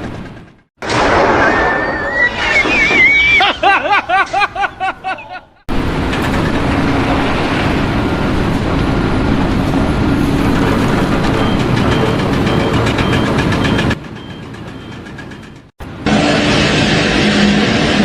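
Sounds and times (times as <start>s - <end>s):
vehicle engine running: 5.7s - 18.0s.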